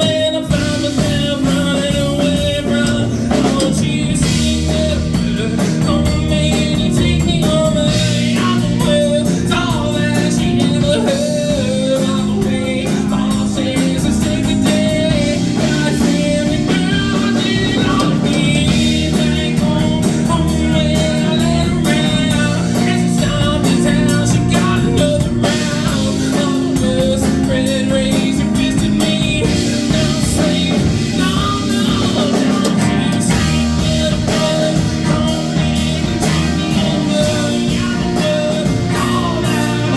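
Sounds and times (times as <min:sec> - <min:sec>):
drums: 0:00.0 - 0:39.9
electric guitar: 0:00.0 - 0:39.9
person singing: 0:00.0 - 0:39.9.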